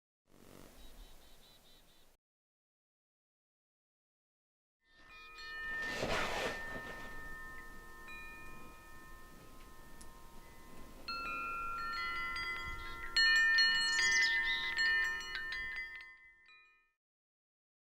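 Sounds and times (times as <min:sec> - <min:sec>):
metallic chimes ringing: 0:04.9 - 0:17.0.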